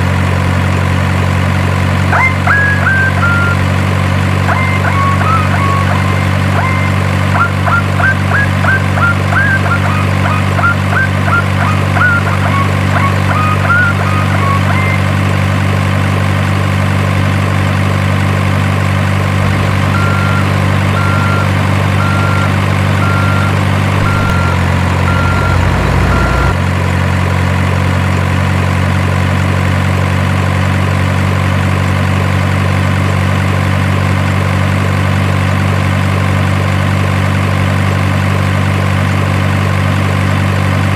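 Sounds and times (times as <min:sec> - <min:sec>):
diesel truck engine idling: 0:00.0 - 0:40.9
regular beeps: 0:02.2 - 0:03.6, 0:04.5 - 0:15.1, 0:19.5 - 0:26.6.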